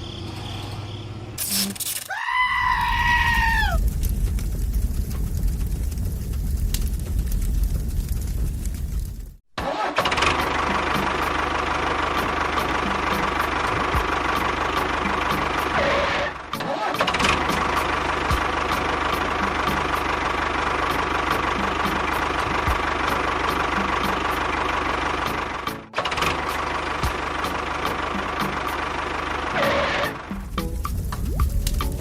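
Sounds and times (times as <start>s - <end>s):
motor running steadily: 10.3s - 16.2s.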